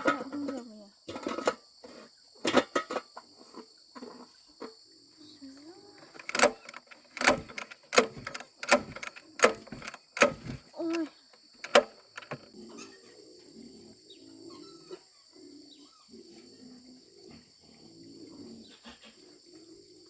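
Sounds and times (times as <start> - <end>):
high insect drone: 0.0 - 12.6
low farm animal calls: 12.5 - 20.0.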